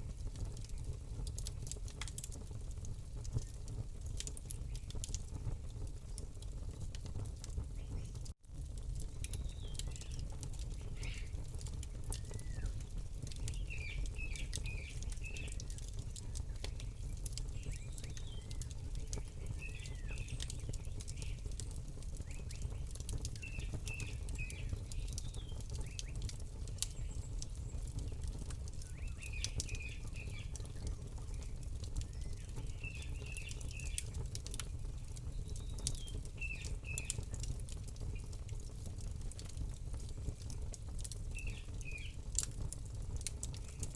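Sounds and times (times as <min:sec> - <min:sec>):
campfire crackling and popping: 0:00.0 - 0:43.9
small bird chirping: 0:10.8 - 0:11.4, 0:17.6 - 0:21.5.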